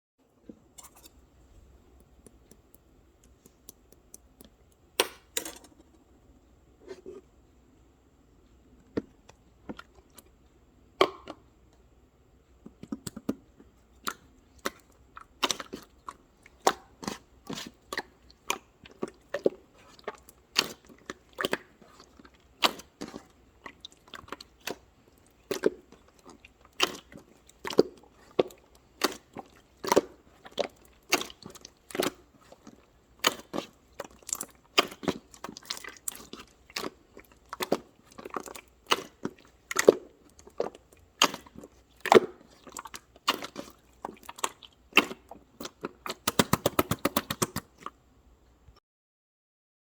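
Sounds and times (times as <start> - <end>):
crunchy chewing: 15.4 - 47.9.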